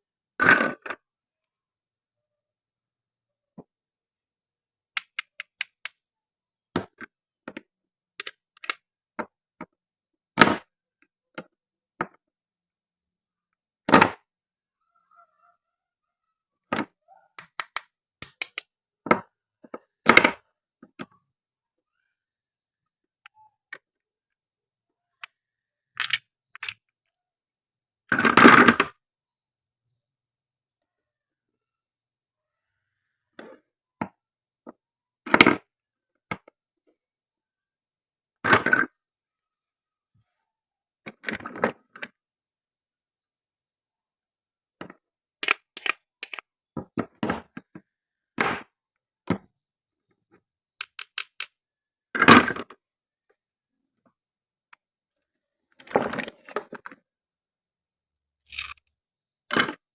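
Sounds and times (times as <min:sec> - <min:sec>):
toy pieces clicking and clacking: 0:17.4 - 0:18.7, 0:26.0 - 0:26.9, 0:45.4 - 0:46.5, 0:50.8 - 0:51.6, 0:58.5 - 0:59.8.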